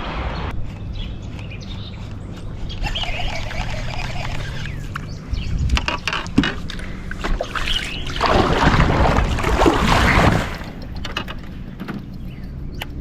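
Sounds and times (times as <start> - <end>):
water sloshing against boat: 5.7 - 12.4
water splashing: 6.7 - 11.1.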